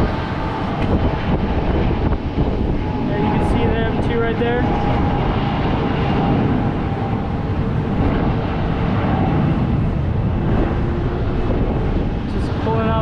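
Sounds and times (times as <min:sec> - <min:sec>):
distant jet airliner taking off: 0:00.0 - 0:13.0.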